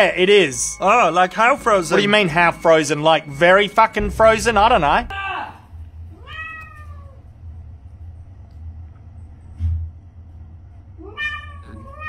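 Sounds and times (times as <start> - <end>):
low steady rumble: 4.0 - 11.0
cat meowing: 6.2 - 7.2, 11.0 - 12.0.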